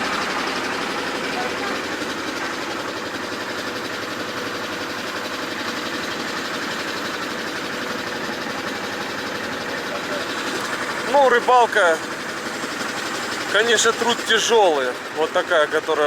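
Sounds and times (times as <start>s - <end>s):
boat engine clattering: 0.0s - 16.0s.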